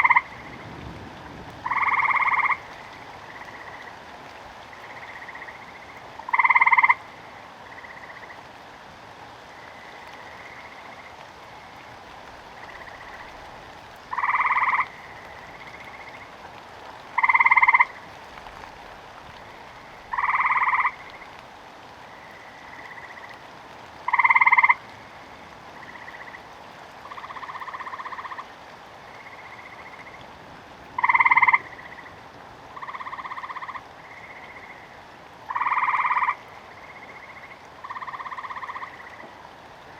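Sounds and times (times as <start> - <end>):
frogs croaking: 0.0 - 8.5, 9.3 - 39.9
rain hissing: 0.0 - 39.9.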